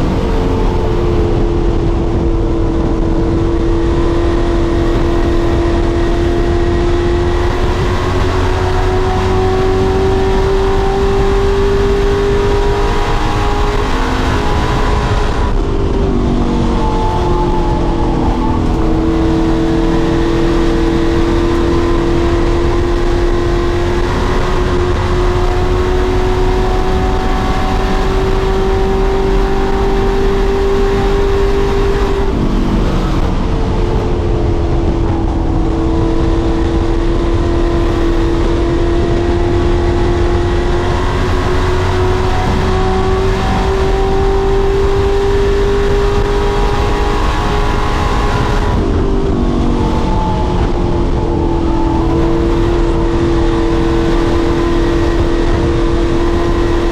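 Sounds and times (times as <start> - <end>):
race engine revving: 0.0 - 56.9.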